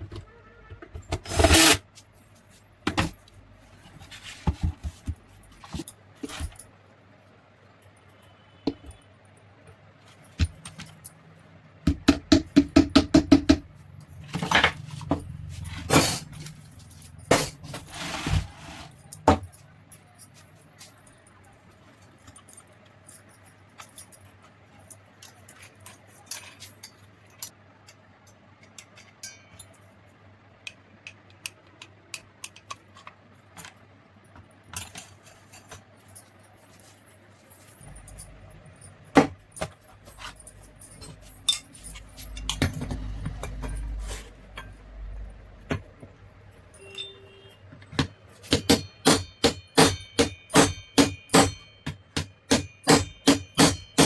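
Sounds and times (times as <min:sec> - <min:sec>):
metal tools clinking and tapping: 0:18.9 - 0:30.0, 0:32.4 - 0:54.0.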